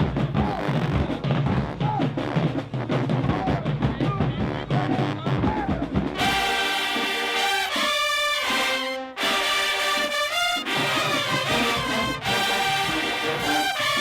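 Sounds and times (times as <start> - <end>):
brass chords: 4.4 - 14.0
drumline bass drums and snares: 10.1 - 14.0.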